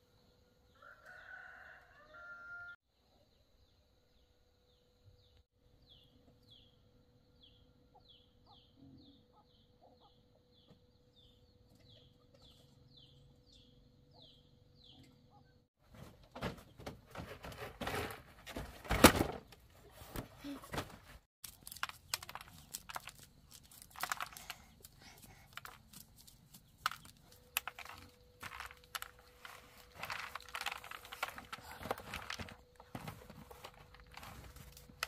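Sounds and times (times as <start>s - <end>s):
bird chirping: 3.2s - 15.6s
rustling and knocking: 15.8s - 35.0s.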